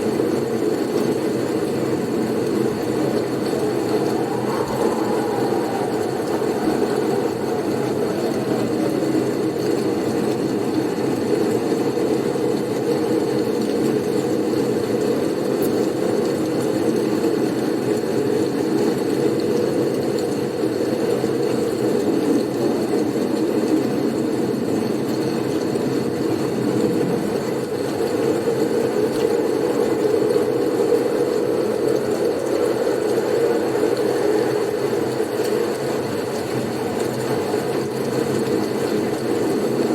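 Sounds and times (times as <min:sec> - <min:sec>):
blizzard wind rushing: 0:00.2 - 0:13.1.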